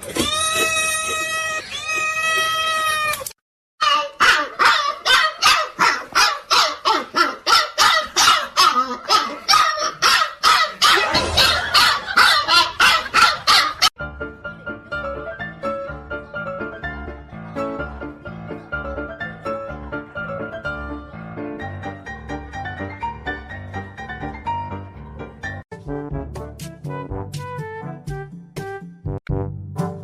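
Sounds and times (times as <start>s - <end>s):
dog barking: 3.8s - 13.9s
cat yowling: 10.8s - 12.4s.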